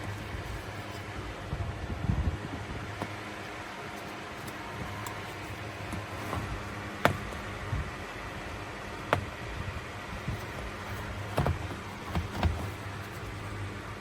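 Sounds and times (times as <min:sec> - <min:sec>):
portable fan whirring: 0:00.0 - 0:14.0
knocks: 0:04.0 - 0:07.5, 0:10.2 - 0:13.5.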